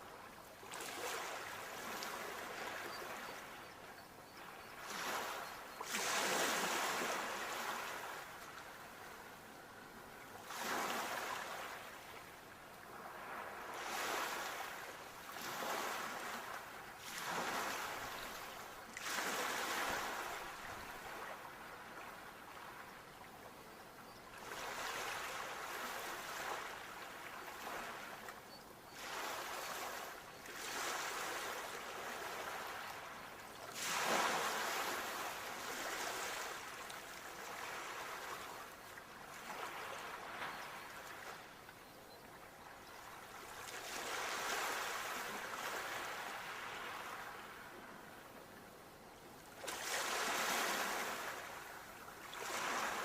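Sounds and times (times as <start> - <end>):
sea waves washing onto shore: 33.7 - 38.5.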